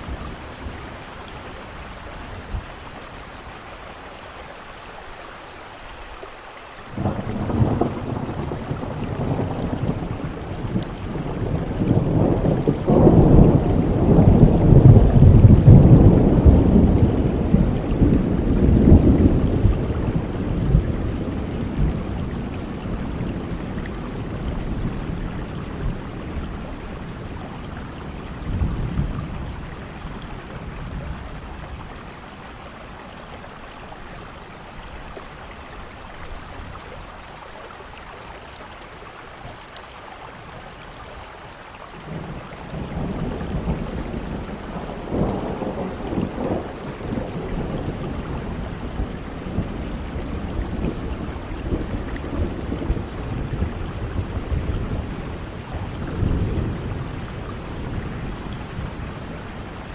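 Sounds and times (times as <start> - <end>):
steady rain: 0.0 - 59.9
thunder rumbling: 6.9 - 32.4, 42.0 - 59.9.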